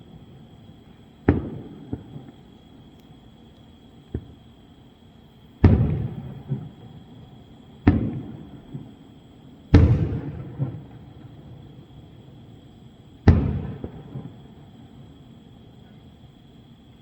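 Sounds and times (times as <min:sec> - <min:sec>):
fireworks booming: 0:01.2 - 0:02.4, 0:05.6 - 0:07.0, 0:07.8 - 0:09.0, 0:09.7 - 0:11.9, 0:13.2 - 0:14.6.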